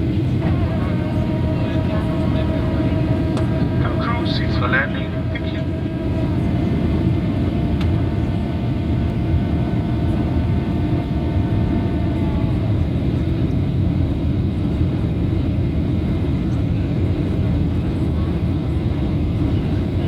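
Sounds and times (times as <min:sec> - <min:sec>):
faint steady whine: 0:00.0 - 0:14.8
airliner engines rumbling: 0:00.0 - 0:20.0.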